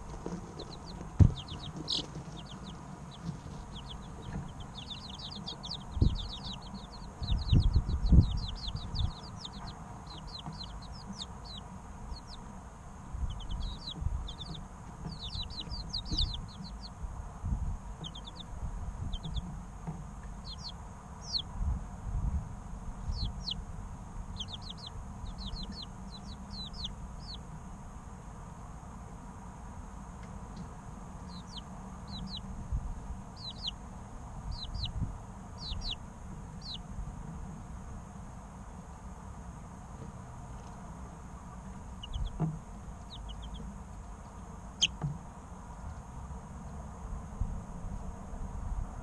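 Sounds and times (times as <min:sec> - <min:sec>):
low dull thumps: 0:00.0 - 0:11.4
chicks peeping: 0:00.0 - 0:27.6, 0:30.2 - 0:37.2, 0:39.9 - 0:45.2.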